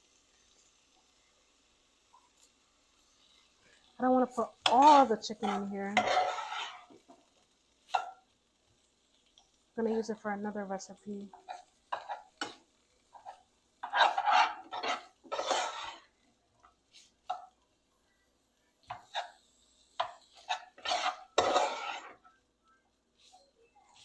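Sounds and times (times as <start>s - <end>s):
pots and dishes clattering: 20.0s - 22.2s.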